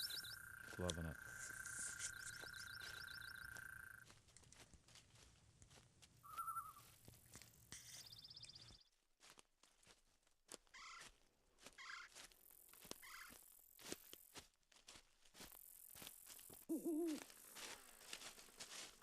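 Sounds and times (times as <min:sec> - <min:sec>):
faint bird calls: 0:00.0 - 0:04.0, 0:06.2 - 0:06.9, 0:10.8 - 0:11.1, 0:11.8 - 0:12.2, 0:13.0 - 0:13.4, 0:16.7 - 0:17.3
footsteps crunching on forest floor: 0:00.0 - 0:19.0.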